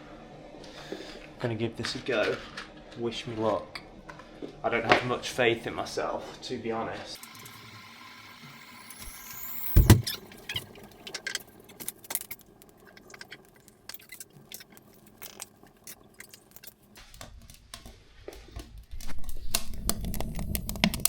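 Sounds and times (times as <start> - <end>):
kindling crackling in fireplace: 7.2 - 21.0.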